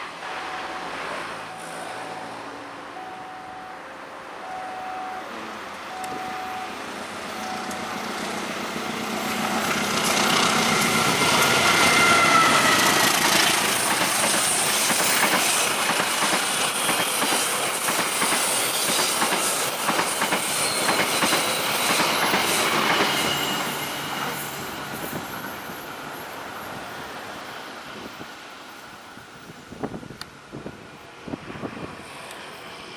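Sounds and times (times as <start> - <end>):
high wheel squeal: 4.5 - 28.8
train wheels clattering over rail joints: 9.1 - 25.1.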